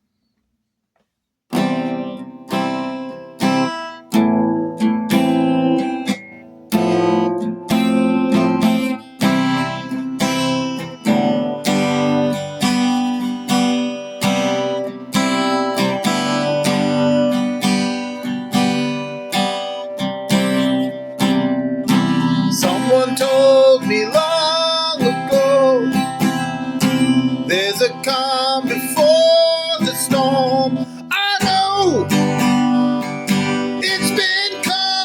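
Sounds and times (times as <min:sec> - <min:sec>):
acoustic guitar strumming: 0:01.5 - 0:35.0
person singing: 0:22.2 - 0:35.0.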